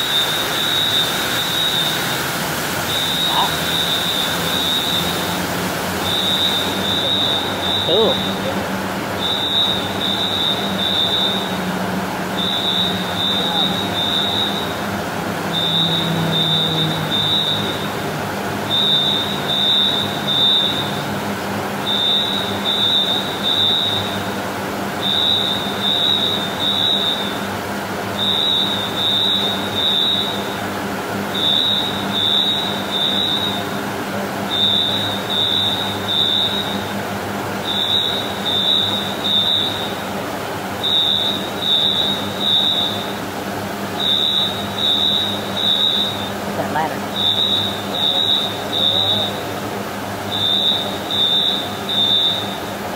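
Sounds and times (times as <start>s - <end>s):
low engine hum: 0.0s - 21.9s
high electronic beeper: 6.1s - 8.5s.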